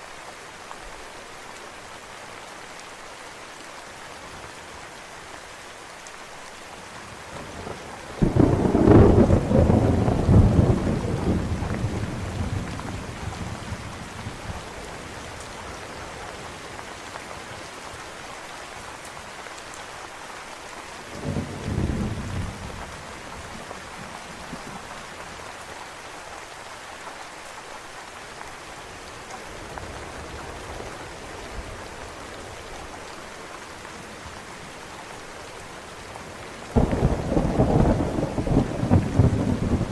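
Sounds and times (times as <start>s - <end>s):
steady rain: 0.0s - 39.9s
thunder rumbling: 8.2s - 14.4s, 36.8s - 39.9s.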